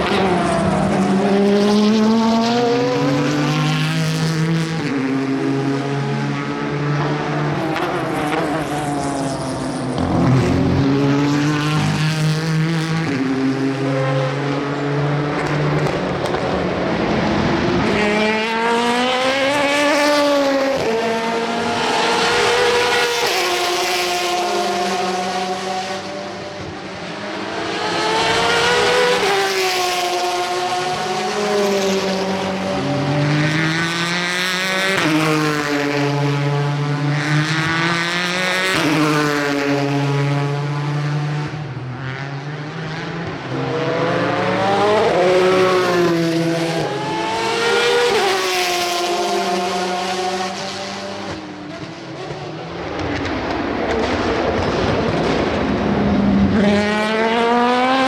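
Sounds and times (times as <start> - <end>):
race cars passing at speed: 0.0 - 58.0.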